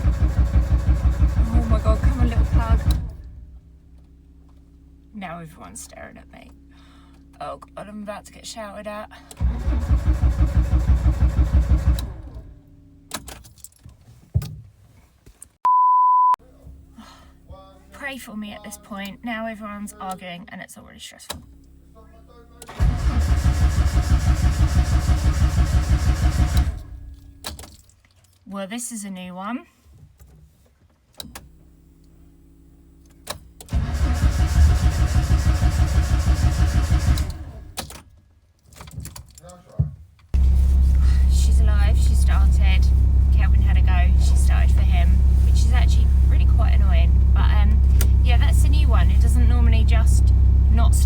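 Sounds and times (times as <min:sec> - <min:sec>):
car starter cranking engine: 0:00.0 - 0:04.6, 0:09.1 - 0:13.6, 0:21.3 - 0:27.9, 0:31.2 - 0:38.1, 0:40.4 - 0:51.0
ignition clicks: 0:00.0 - 0:04.6, 0:09.2 - 0:13.8, 0:22.6 - 0:27.9, 0:31.1 - 0:32.2, 0:32.9 - 0:38.1, 0:40.3 - 0:51.0.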